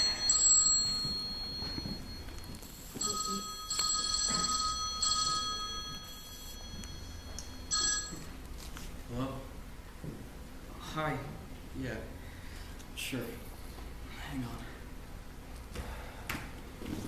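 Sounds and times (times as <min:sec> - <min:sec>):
telephone ringing: 0:00.0 - 0:08.4.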